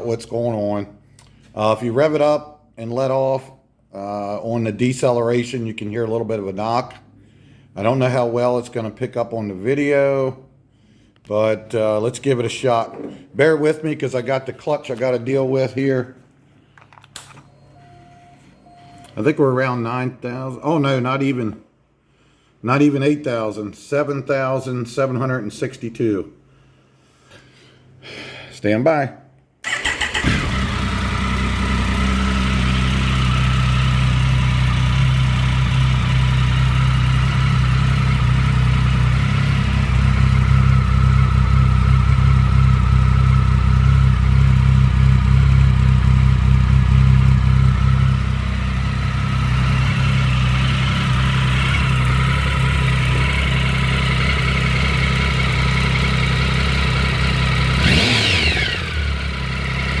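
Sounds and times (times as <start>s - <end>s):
motorcycle engine idling and revving: 29.7s - 60.0s.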